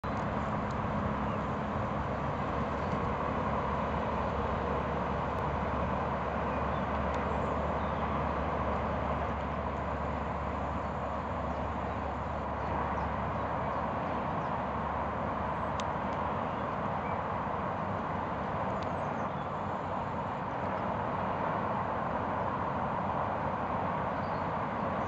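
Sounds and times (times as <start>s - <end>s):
distant road traffic hum: 0.0s - 25.0s.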